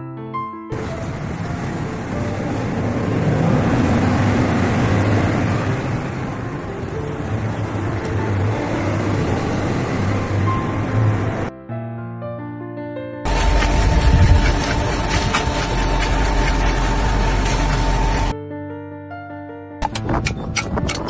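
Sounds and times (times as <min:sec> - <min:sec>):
road traffic noise: 0:00.7 - 0:11.5, 0:13.3 - 0:18.4.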